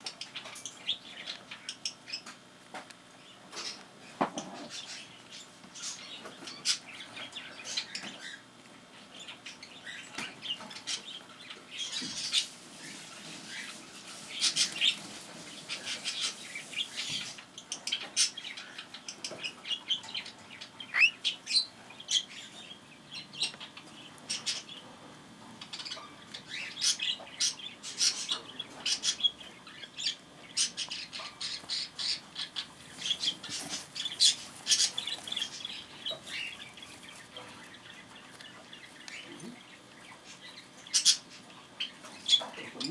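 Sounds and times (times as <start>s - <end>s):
bird chirps and squawks: 15.6s - 22.7s.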